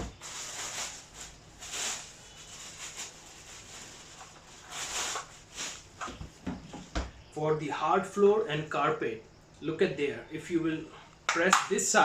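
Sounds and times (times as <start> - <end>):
packaging rustling: 0.1 - 6.2.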